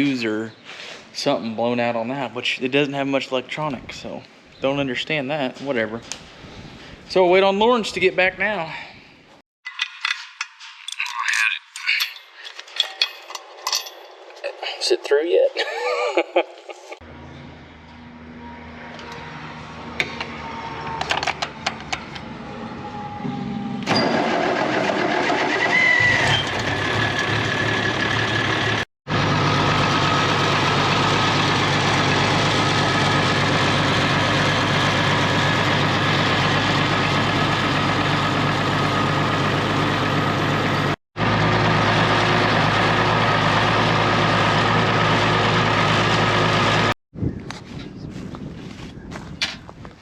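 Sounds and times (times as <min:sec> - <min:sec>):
engine running steadily: 0:26.5 - 0:46.9.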